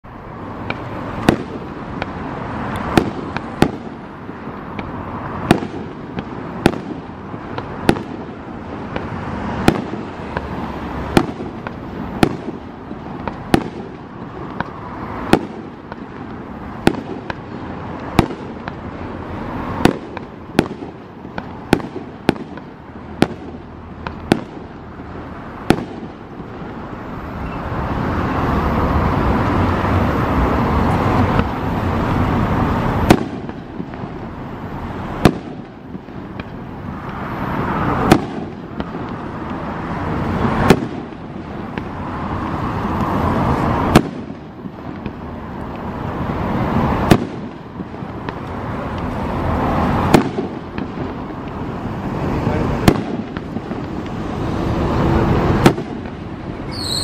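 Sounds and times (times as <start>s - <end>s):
firework shells bursting: 0.6s - 19.0s, 19.6s - 27.6s, 31.2s - 57.0s.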